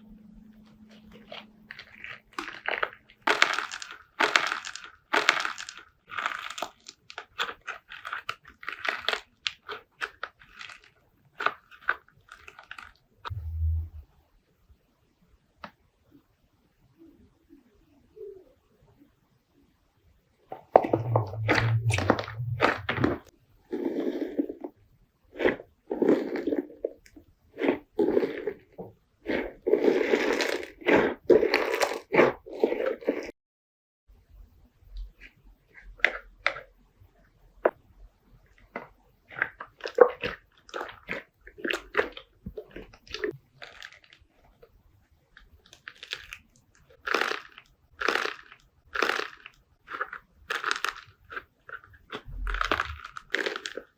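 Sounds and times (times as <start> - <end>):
slime squelching and crackling: 0.7 - 14.0, 20.5 - 33.3, 38.5 - 53.9
low dull thump: 13.3 - 14.1.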